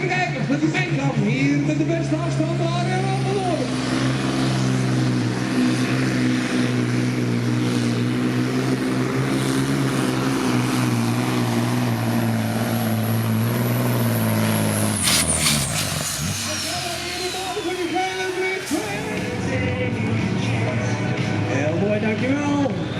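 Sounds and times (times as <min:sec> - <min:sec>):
truck engine running under load: 0:00.0 - 0:21.5
thin high whistle: 0:16.7 - 0:19.0.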